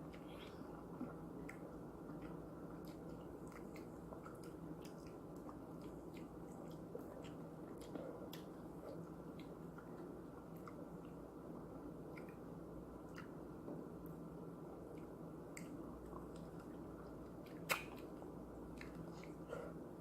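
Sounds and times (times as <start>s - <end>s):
wet chewing with mouth clicks: 0.0s - 19.8s
steady low hum: 0.0s - 20.0s.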